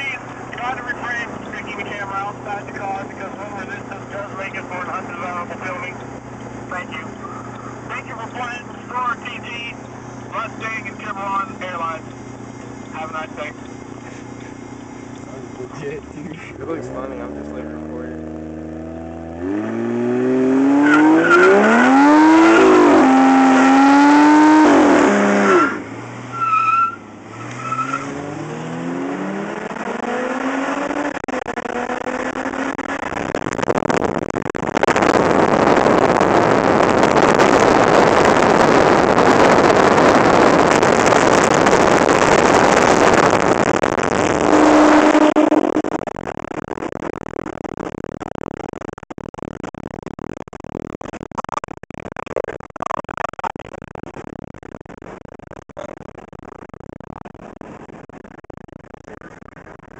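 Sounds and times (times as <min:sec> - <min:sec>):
car engine revving hard: 0:00.0 - 0:33.5, 0:34.8 - 0:46.4
tyres screeching: 0:25.2 - 0:28.2.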